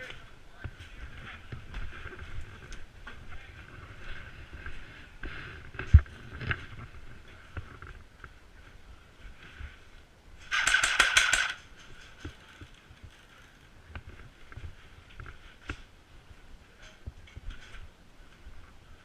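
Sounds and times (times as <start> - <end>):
airsoft gunfire burst: 10.5 - 11.6.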